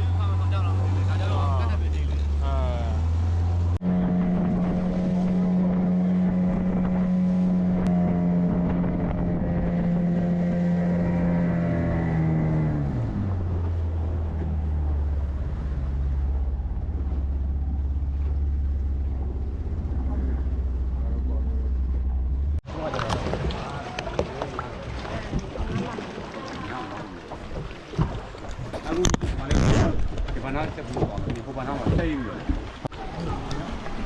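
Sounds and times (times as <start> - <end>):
motorboat engine running: 0.0 - 34.0
wind on microphone: 4.0 - 18.0.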